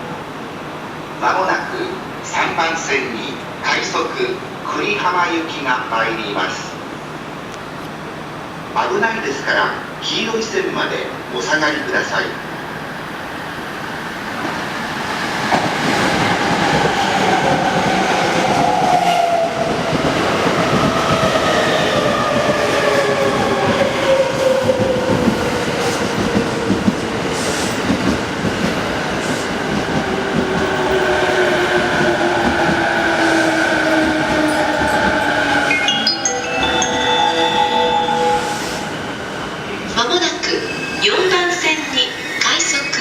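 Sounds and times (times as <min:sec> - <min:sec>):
train wheels clattering on rails: 0:19.7 - 0:35.7.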